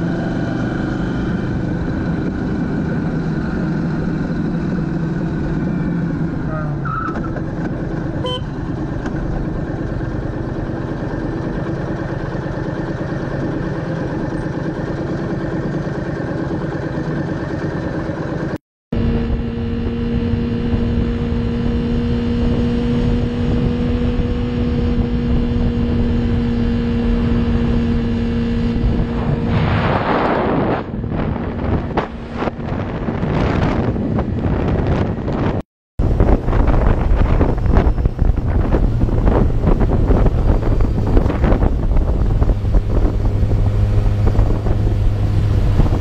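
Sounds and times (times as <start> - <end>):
road noise: 0.0 - 46.0
motorbike engine running: 7.4 - 29.4.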